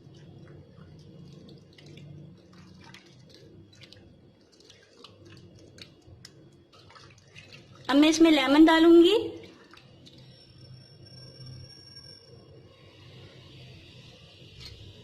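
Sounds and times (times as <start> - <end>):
hands mixing chicken in a bowl: 0.0 - 8.8, 9.4 - 10.3.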